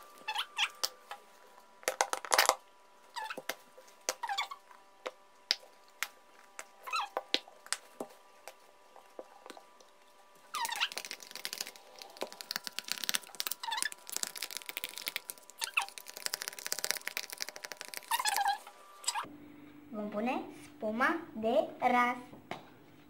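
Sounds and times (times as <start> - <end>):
slime crackling and sputtering: 10.5 - 19.2.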